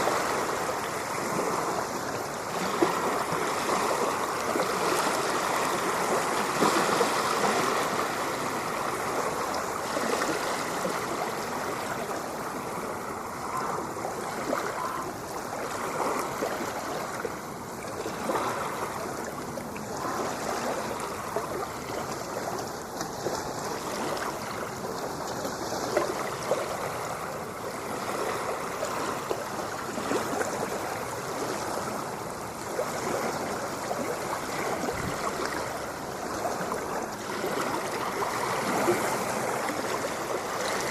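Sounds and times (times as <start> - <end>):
rushing splashing water: 0.0 - 40.9.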